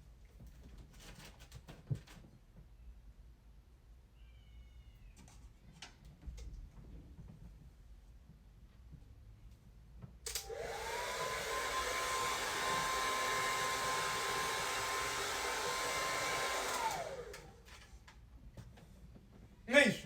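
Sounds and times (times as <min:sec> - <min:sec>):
hair dryer running: 0:10.3 - 0:17.8.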